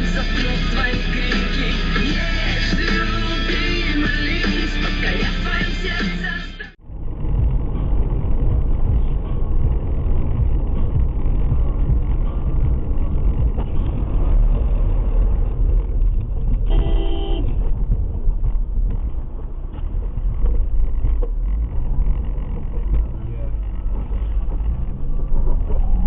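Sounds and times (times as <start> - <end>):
car driving rumble: 0.0 - 26.0
car horn honk: 16.6 - 17.7.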